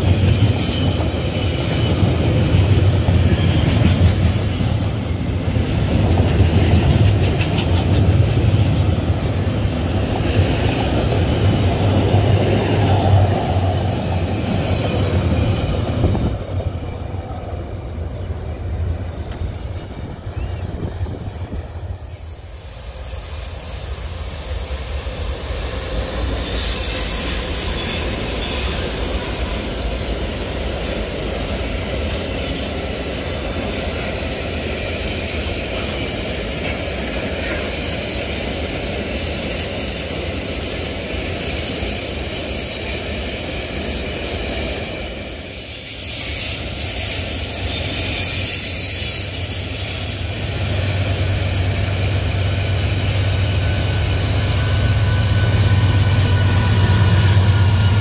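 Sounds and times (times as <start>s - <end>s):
diesel locomotive: 0.0s - 58.0s
steel wheels rumbling on rail: 0.0s - 58.0s
wheels clicking over rail joints: 6.0s - 9.2s.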